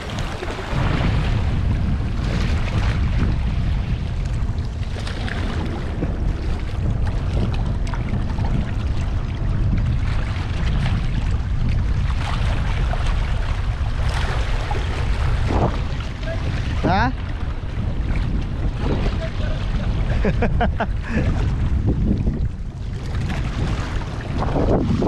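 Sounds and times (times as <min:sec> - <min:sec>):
sea washing against shore: 0:00.0 - 0:25.0
wind buffeting microphone: 0:00.0 - 0:25.0.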